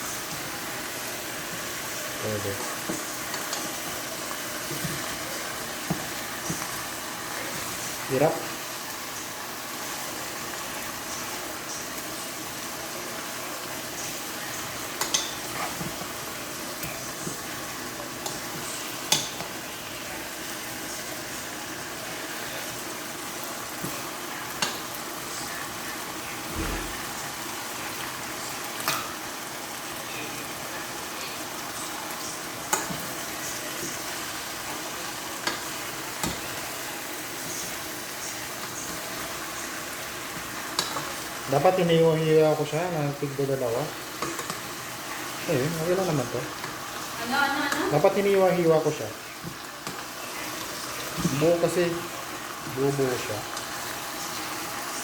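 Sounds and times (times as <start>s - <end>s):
food sizzling in a pan: 0.0s - 55.0s.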